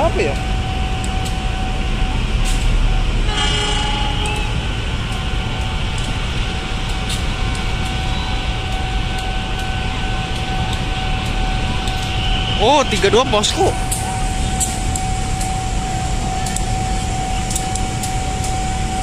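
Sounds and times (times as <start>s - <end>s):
diesel locomotive rumble: 0.0s - 19.0s
train horn toot: 3.2s - 4.8s, 11.9s - 12.6s.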